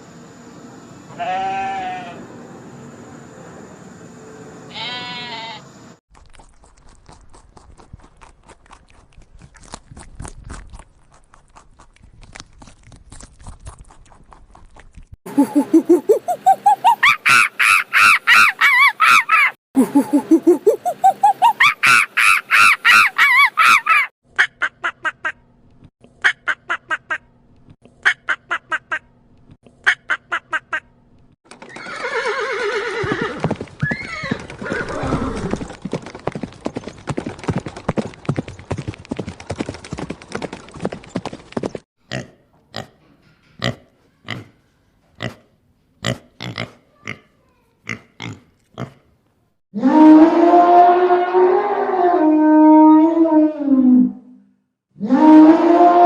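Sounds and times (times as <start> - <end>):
hoof clip-clops: 6.2 - 10.8, 32.9 - 41.8
horse whinnying: 31.6 - 35.7
animal low drawn-out call: 49.8 - 54.3, 55.0 - 56.0.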